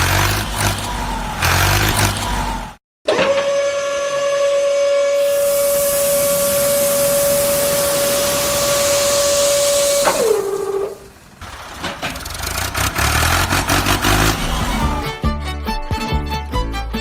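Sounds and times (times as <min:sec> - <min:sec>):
high machine whine: 0:05.0 - 0:11.4.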